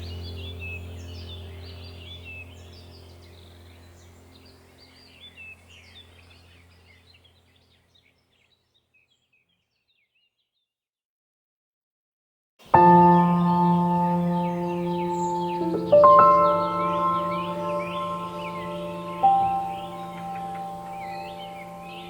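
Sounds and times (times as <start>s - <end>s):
low sustained drone: 0.0s - 7.2s, 12.8s - 22.0s
birdsong chirping: 0.0s - 10.7s, 12.6s - 22.0s.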